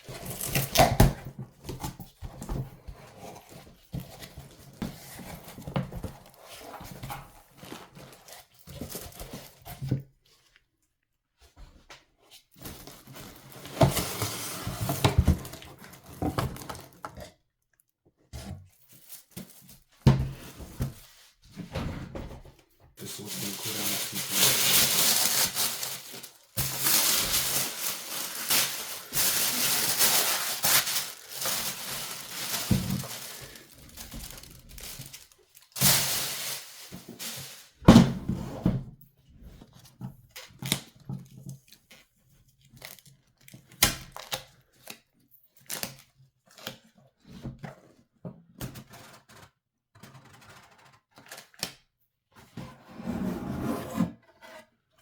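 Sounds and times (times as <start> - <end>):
packaging crinkling and tearing: 0.1 - 1.2, 23.0 - 37.8.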